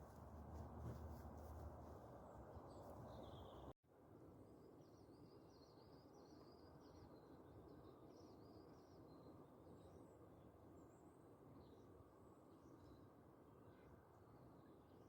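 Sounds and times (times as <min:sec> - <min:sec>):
low outdoor hum: 0:00.0 - 0:03.8
birds singing faintly: 0:02.1 - 0:03.8.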